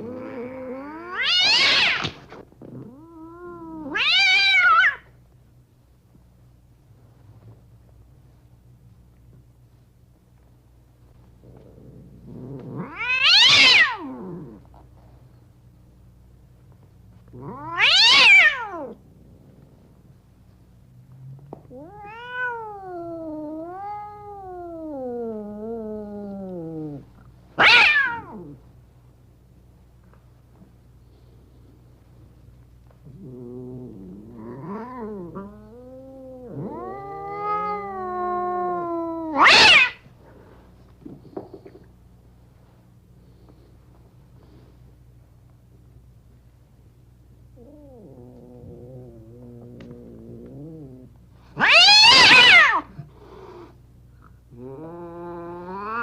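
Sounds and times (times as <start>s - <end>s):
cats yowling: 0.0s - 2.2s, 2.8s - 5.1s, 12.4s - 14.6s, 17.4s - 19.0s, 21.7s - 27.0s, 27.6s - 28.6s, 34.2s - 40.1s, 47.6s - 53.1s, 54.6s - 56.0s
cat screech: 1.2s - 2.2s, 27.6s - 28.3s, 39.3s - 40.0s, 51.6s - 52.9s.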